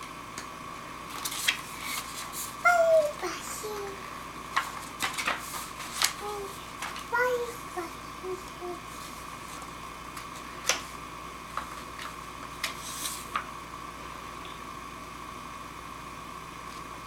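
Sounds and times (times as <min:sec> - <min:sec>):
steady high hum: 0:00.0 - 0:17.0
faint child's voice: 0:02.6 - 0:04.0, 0:06.2 - 0:08.9.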